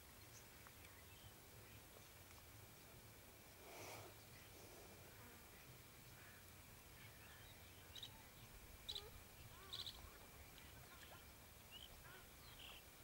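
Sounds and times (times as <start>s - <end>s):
bird chirps: 7.0s - 10.1s, 10.9s - 12.9s.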